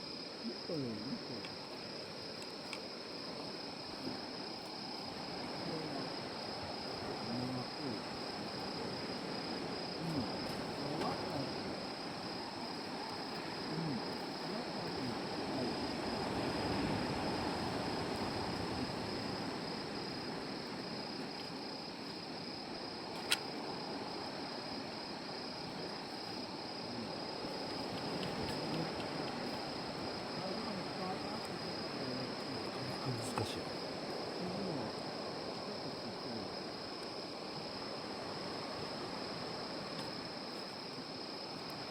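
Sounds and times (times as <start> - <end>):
crackling hiss of fire: 0.0 - 41.9
insects trilling: 0.0 - 41.9
faint clicks: 27.9 - 29.4.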